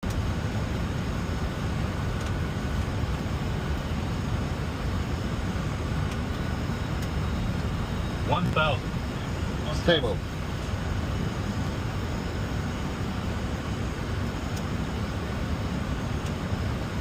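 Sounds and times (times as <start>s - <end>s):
jet engine noise: 0.0s - 17.0s.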